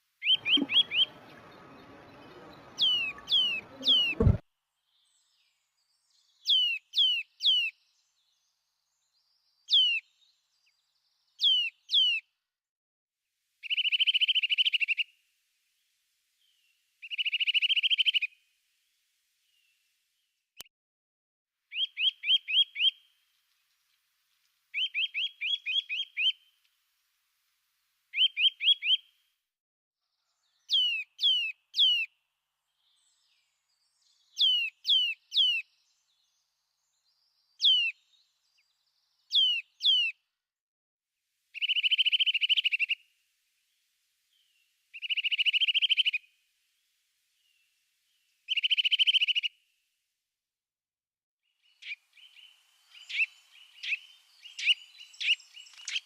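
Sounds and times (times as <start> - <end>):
songbird singing: 0.0 - 12.4, 13.6 - 20.4, 21.7 - 26.8, 27.7 - 29.2, 30.1 - 40.3, 41.5 - 49.8, 51.4 - 56.0.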